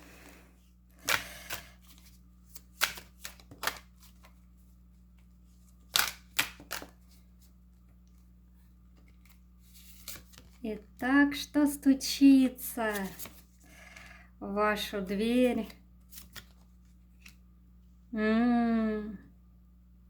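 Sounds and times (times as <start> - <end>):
faint steady hum: 0.0 - 20.0
cards slapping and rustling: 1.0 - 8.3, 8.9 - 10.6, 12.8 - 13.6, 16.0 - 17.4.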